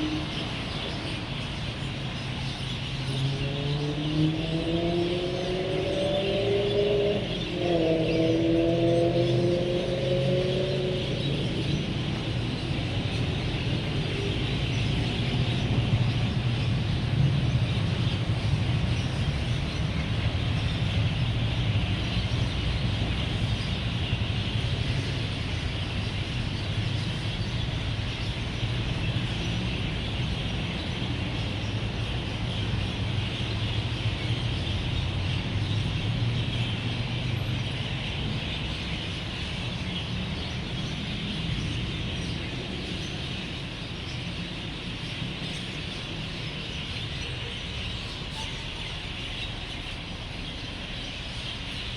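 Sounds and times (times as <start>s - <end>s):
many birds chirping: 0.0s - 51.9s
road traffic rumble: 0.0s - 51.9s.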